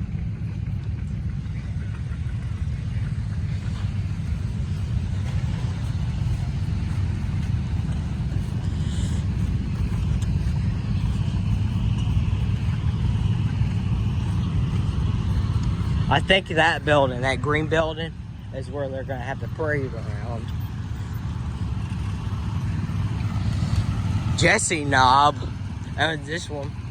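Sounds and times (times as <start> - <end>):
tractor engine rumbling: 0.0 - 26.9.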